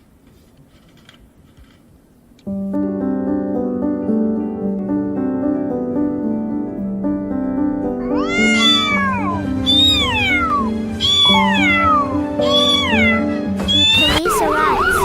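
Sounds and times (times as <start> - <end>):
background music held notes: 2.5 - 15.0
cat meowing: 8.0 - 15.0.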